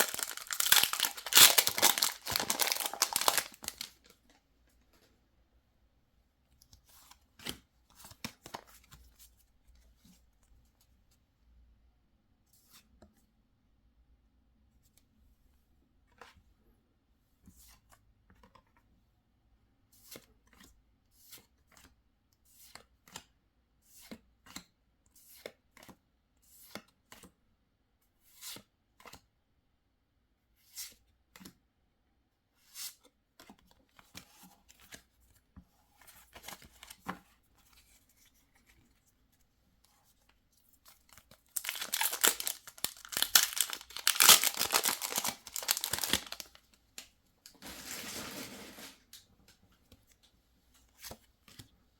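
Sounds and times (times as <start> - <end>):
foil wrapper tearing: 0.0 - 4.0, 41.5 - 46.6.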